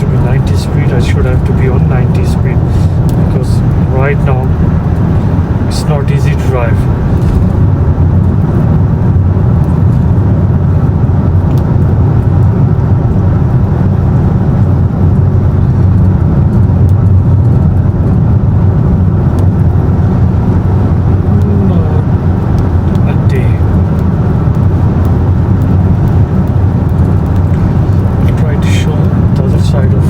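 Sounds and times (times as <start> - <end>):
car engine: 0.0 - 30.0
wind noise: 0.0 - 30.0.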